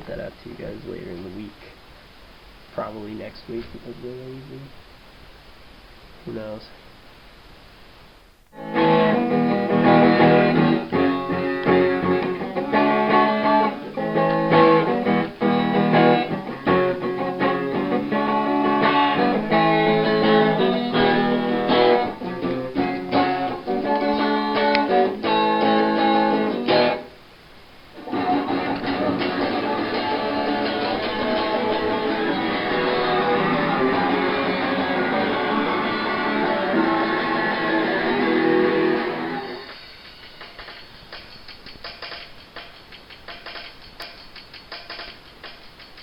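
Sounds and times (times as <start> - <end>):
guitar strumming chords: 8.5 - 27.2, 28.0 - 42.7.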